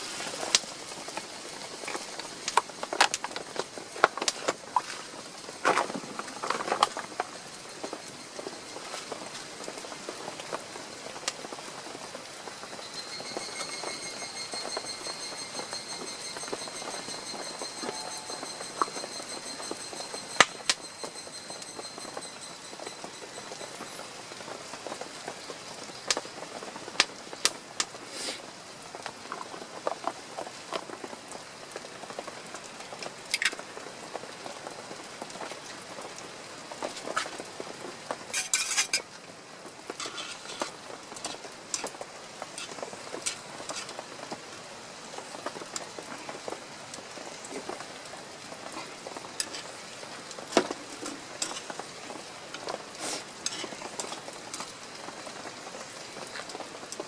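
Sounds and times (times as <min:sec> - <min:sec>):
rain pattering: 0:00.0 - 0:57.0
thin high steady tone: 0:12.5 - 0:24.5.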